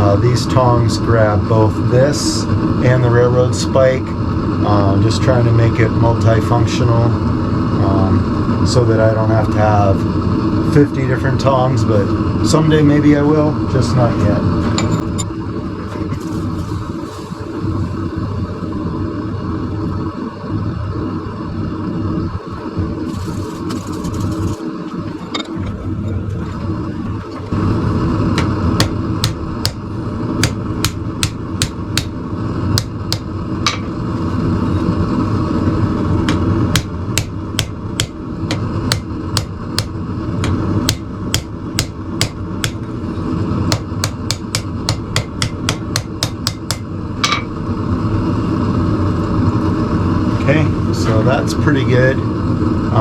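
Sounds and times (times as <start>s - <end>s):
steady low roar: 0.0s - 46.0s
hammer blows on hot steel: 28.3s - 34.0s, 36.2s - 43.0s, 43.7s - 47.5s.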